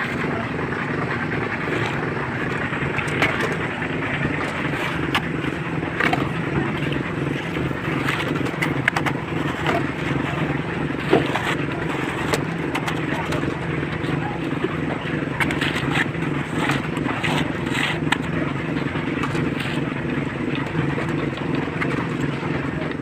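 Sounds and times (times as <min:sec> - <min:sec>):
knocks and scrapes: 0:00.0 - 0:22.4
concrete mixer engine drone: 0:00.0 - 0:23.0.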